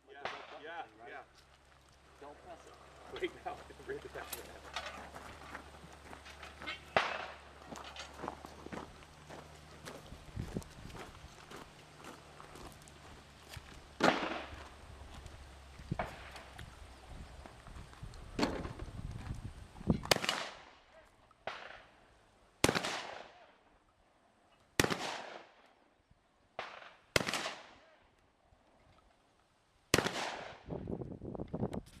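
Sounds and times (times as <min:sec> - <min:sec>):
shotgun shots with echo: 0:06.9 - 0:07.4, 0:14.0 - 0:14.6, 0:20.0 - 0:20.8, 0:21.4 - 0:21.9, 0:22.6 - 0:23.5, 0:24.8 - 0:25.5, 0:26.6 - 0:27.9, 0:29.9 - 0:30.7.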